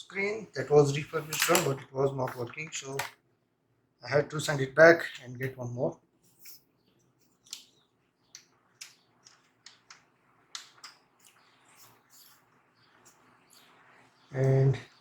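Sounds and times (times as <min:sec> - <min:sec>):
laptop parts clicking and tapping: 0:07.3 - 0:11.4.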